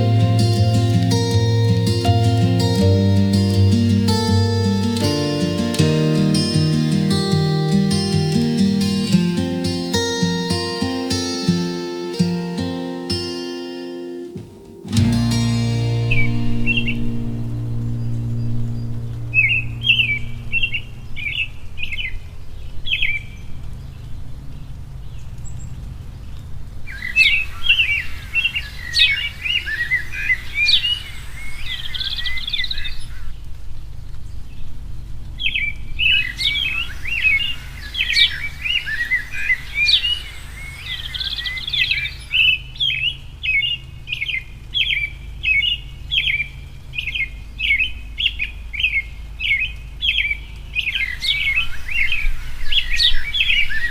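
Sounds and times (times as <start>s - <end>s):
steady low hum: 14.3s - 22.4s.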